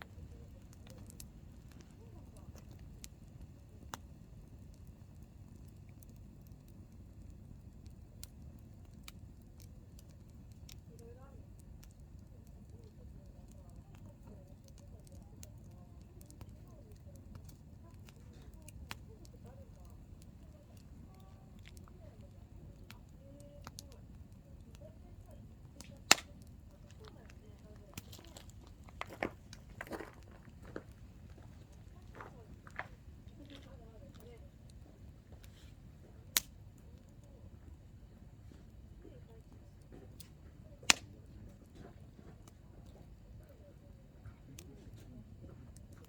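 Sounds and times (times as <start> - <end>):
campfire burning: 0.0 - 46.0
firewood crackling: 0.0 - 46.0
wood popping: 16.4 - 38.1, 39.9 - 41.2.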